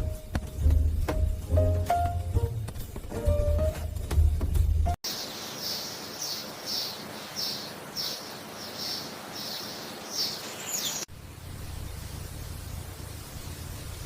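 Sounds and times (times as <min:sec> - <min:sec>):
bird chirping: 0:05.1 - 0:11.1
steady hiss: 0:05.1 - 0:14.0.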